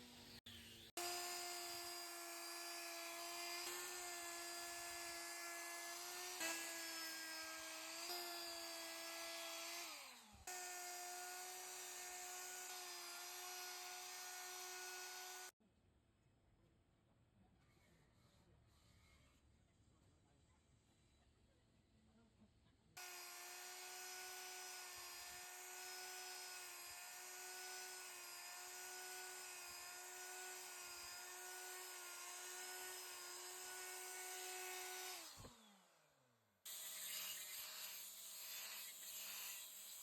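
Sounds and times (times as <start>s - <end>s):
wood carving tool motor whine: 1.0s - 15.5s, 23.0s - 35.8s, 36.7s - 40.0s.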